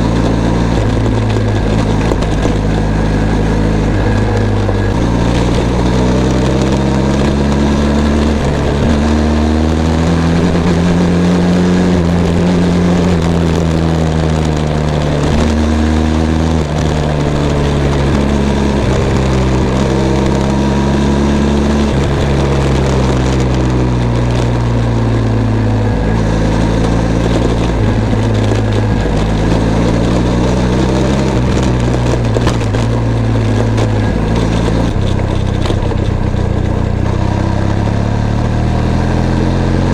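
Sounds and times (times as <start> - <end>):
motorcycle engine shifting gears: 0.0 - 39.9
wind and road noise: 0.0 - 39.9.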